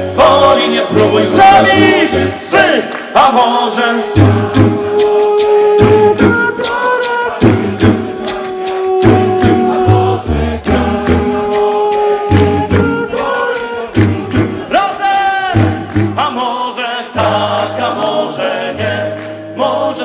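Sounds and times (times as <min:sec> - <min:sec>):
vocal group singing in harmony: 0:00.0 - 0:20.0
sung bass line: 0:05.7 - 0:16.4.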